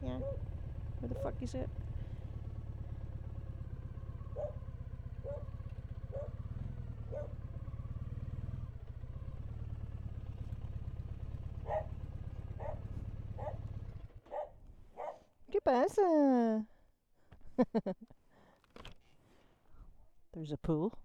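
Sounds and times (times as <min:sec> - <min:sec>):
motorcycle engine running at low revs: 0:00.0 - 0:15.1
small dog barking: 0:00.1 - 0:00.5, 0:04.3 - 0:07.4, 0:11.6 - 0:13.7, 0:14.3 - 0:15.3.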